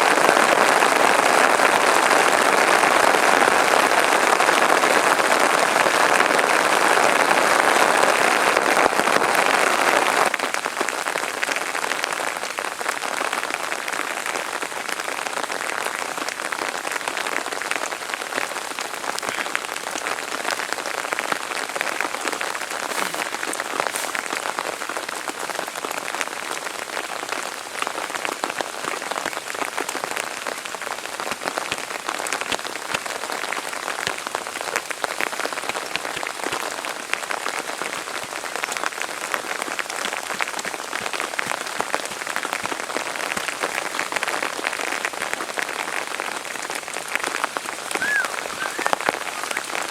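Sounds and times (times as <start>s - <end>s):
rain falling: 0.0s - 49.9s
raindrop ticks: 39.3s - 44.5s.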